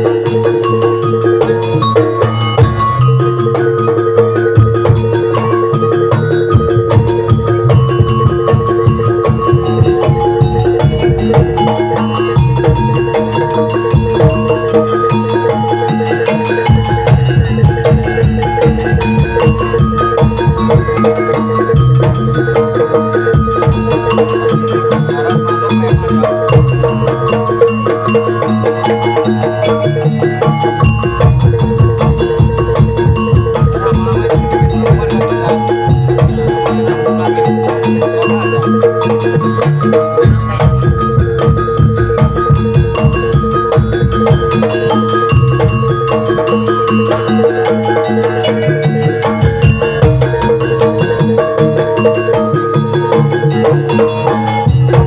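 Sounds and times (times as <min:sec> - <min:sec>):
drum: 0:00.0 - 0:55.0
gamelan metal mallet instruments: 0:00.0 - 0:55.0
metallophones ringing melody: 0:00.0 - 0:55.0.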